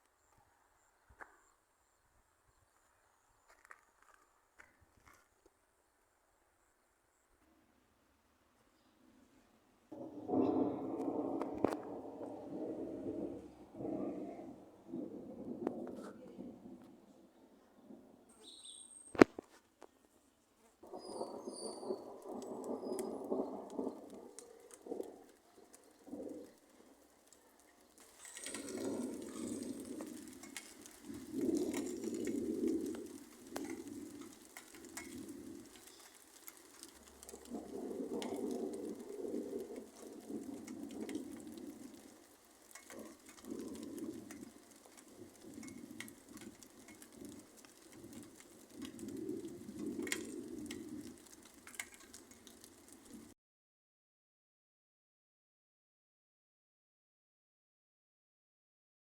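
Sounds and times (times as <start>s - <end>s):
doves cooing: 10.1s - 16.2s, 20.8s - 53.2s.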